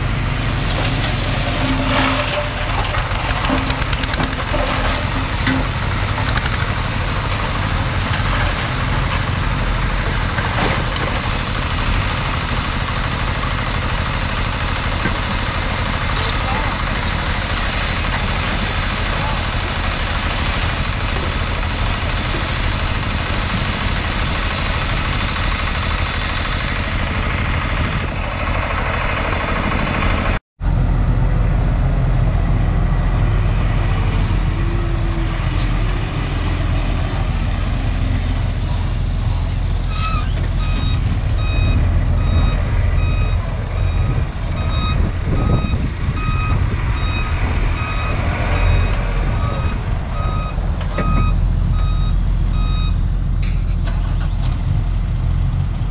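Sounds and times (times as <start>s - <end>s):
diesel machinery running: 0.0s - 55.9s
reversing alarm beeping: 39.9s - 53.0s.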